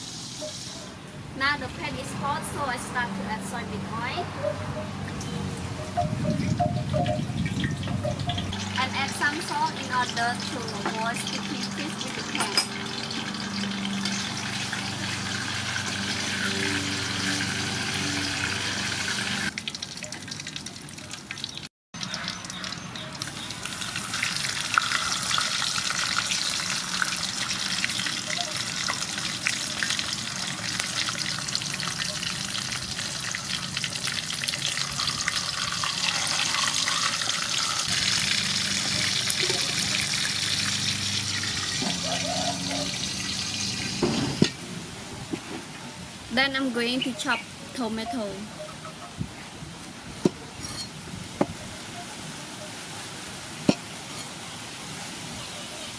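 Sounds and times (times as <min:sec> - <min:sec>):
fish sizzling in hot oil: 0:00.0 - 0:00.8, 0:07.4 - 0:44.4.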